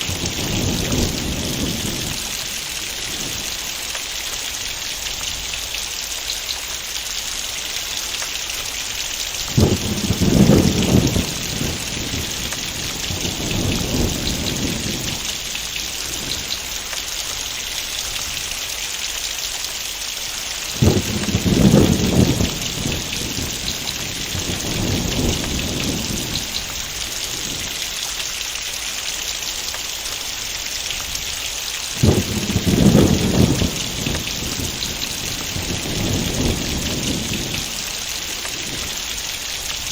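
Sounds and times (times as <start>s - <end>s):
rolls of thunder: 0.0s - 3.5s, 9.4s - 16.7s, 20.7s - 27.8s, 32.0s - 39.2s
heavy rain falling: 0.0s - 39.9s.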